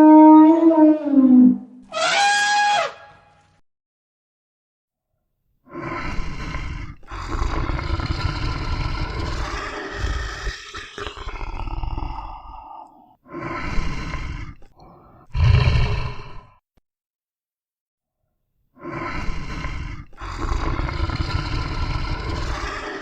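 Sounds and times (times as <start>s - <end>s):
large animal roaring: 5.8s - 16.6s, 18.8s - 23.0s.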